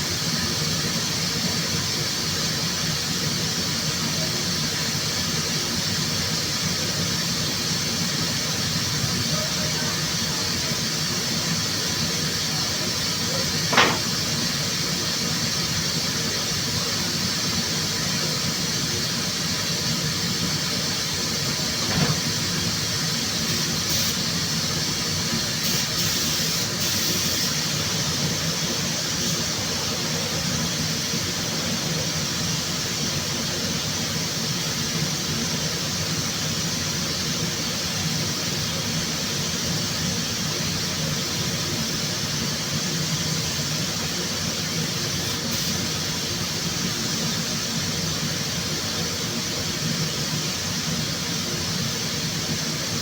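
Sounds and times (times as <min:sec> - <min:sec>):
compressed air hissing: 0:10.2 - 0:17.8, 0:20.5 - 0:30.0, 0:44.9 - 0:46.2.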